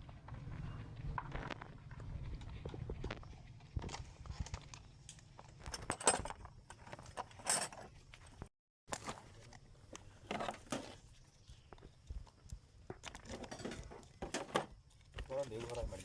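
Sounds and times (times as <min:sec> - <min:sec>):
metallic clinks of tools: 0:05.7 - 0:07.9.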